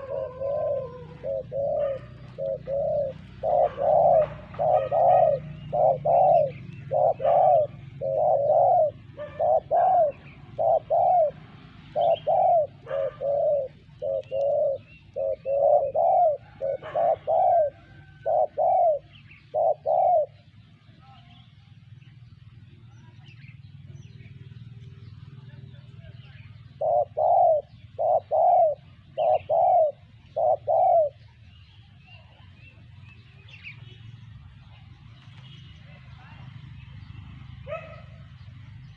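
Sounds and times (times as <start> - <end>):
dove cooing: 0.0 - 20.8, 24.0 - 31.6, 37.4 - 38.9.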